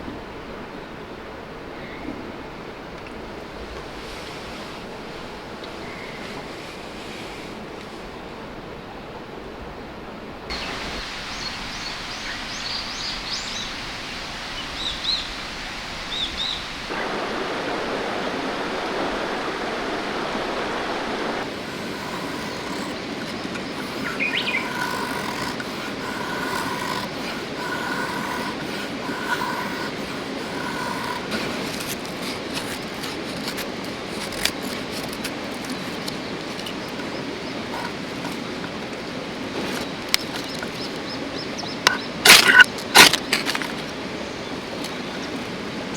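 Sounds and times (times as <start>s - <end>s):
river water flowing: 16.9s - 45.9s
small birds chirping: 21.4s - 42.6s.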